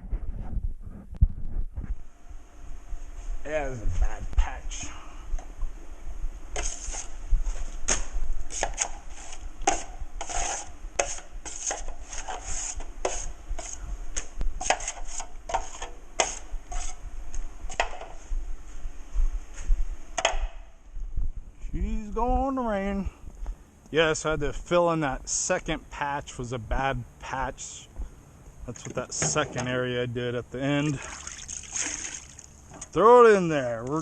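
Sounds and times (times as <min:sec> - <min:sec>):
drywall knife scraping compound: 0:06.6 - 0:07.1, 0:07.9 - 0:13.8, 0:14.6 - 0:17.0.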